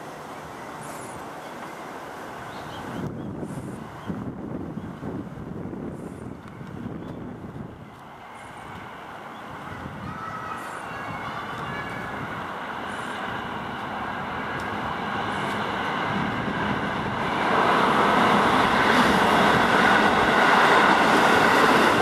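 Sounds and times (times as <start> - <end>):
train wheels on rails: 4.9 - 22.0.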